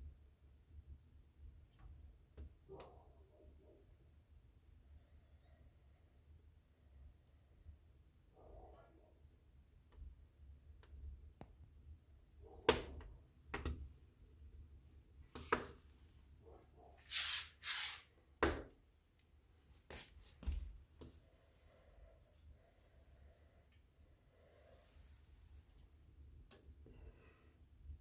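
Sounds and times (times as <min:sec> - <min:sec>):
wood fire crackling: 0:09.8 - 0:16.4
fire hissing: 0:17.1 - 0:18.1.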